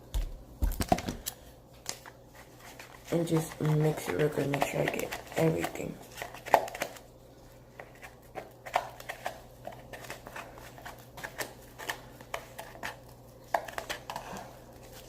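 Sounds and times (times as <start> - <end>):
utensil stirring in a cup: 2.7 - 6.8.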